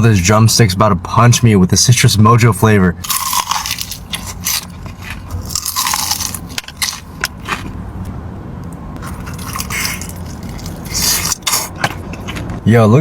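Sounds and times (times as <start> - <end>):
steady low hum: 0.0 - 13.0
person chewing crunchy food: 3.0 - 8.1, 9.0 - 12.6.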